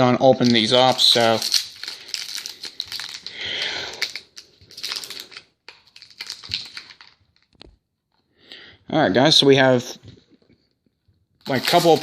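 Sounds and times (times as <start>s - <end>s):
packaging crinkling and rustling: 0.4s - 7.8s, 11.4s - 12.0s.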